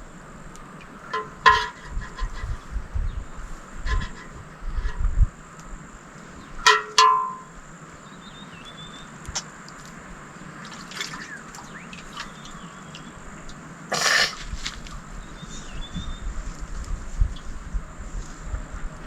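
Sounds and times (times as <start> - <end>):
wind gusts on microphone: 0.0 - 6.7, 7.5 - 19.0
water dripping and trickling: 9.2 - 13.7.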